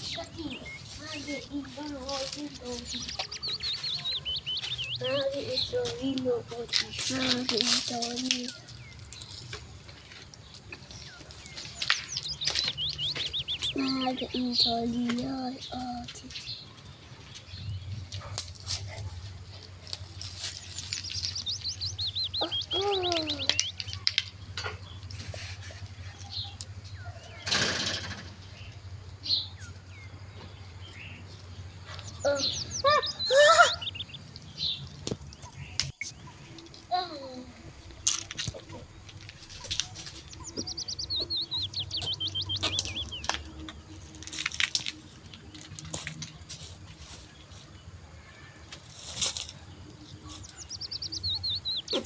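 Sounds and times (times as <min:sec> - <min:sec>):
songbird chirping: 0:00.0 - 0:52.0
songbird whistling: 0:20.8 - 0:24.1, 0:40.4 - 0:43.3
short scraping noises: 0:25.0 - 0:26.6.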